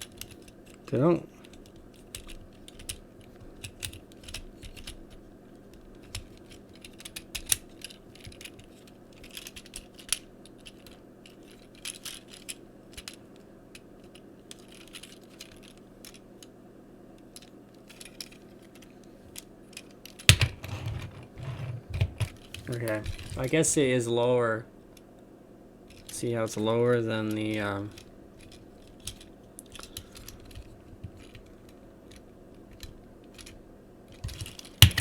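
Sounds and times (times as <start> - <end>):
plastic toy parts clicking: 1.5 - 3.0, 3.6 - 16.2, 27.3 - 35.0.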